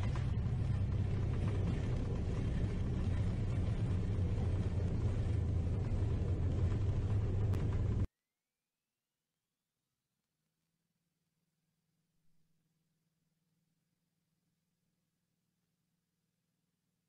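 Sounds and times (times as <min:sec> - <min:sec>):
jet engine and runway rumble: 0:00.0 - 0:08.1.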